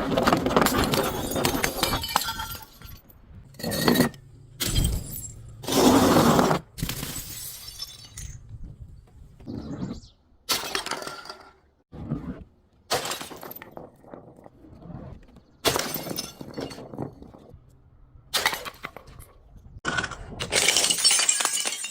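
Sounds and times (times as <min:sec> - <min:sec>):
glass bottles shattering: 0:00.6 - 0:03.0, 0:03.6 - 0:05.8, 0:06.8 - 0:08.4, 0:12.9 - 0:14.0, 0:15.7 - 0:17.4, 0:19.9 - 0:21.9.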